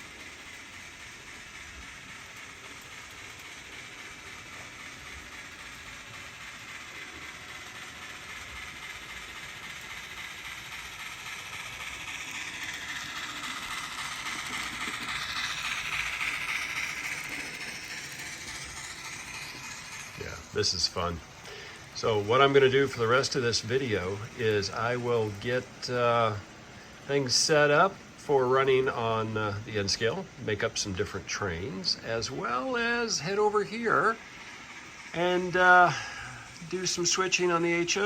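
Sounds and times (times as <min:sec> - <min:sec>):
model train rolling on track: 0:00.0 - 0:38.0.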